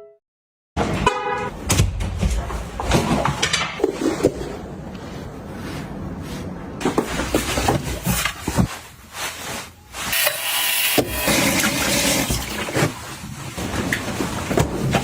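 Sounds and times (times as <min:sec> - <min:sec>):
rustling brushing noise: 0:03.9 - 0:10.2.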